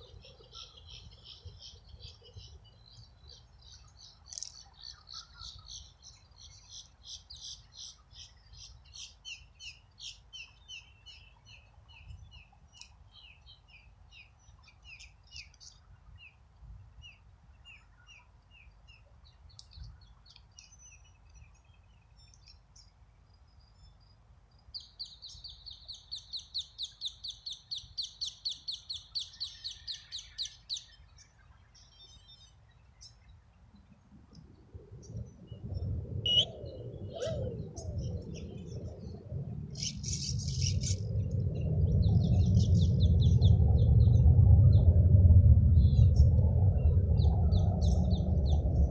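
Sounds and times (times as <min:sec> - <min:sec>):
songbirds trilling: 0:00.0 - 0:16.4, 0:36.3 - 0:44.2
faint low rumble: 0:31.1 - 0:48.9.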